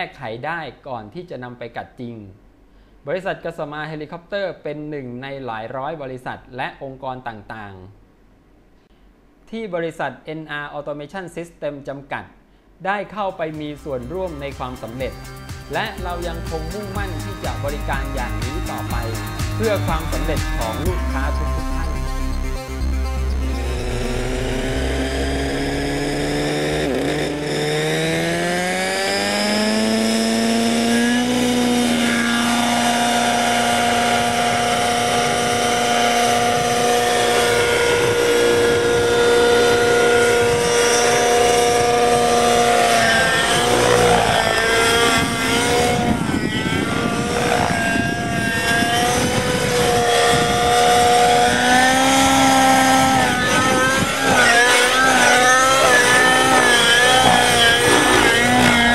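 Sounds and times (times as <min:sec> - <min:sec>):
model helicopter engine: 0:15.8 - 0:58.9.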